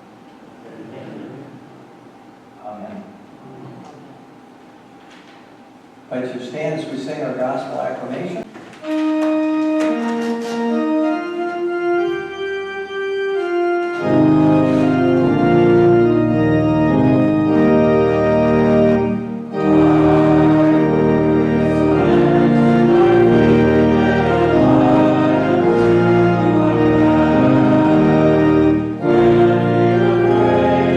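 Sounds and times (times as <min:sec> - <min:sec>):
church organ chords: 0:08.8 - 0:30.9.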